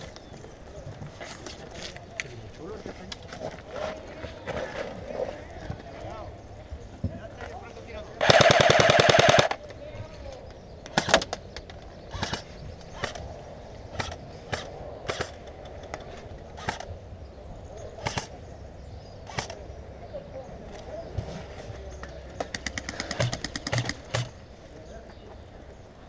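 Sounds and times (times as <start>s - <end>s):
airsoft gun full-auto burst: 8.2s - 9.6s, 22.5s - 24.4s
airsoft gun single shots: 14.0s - 15.4s, 22.5s - 24.4s.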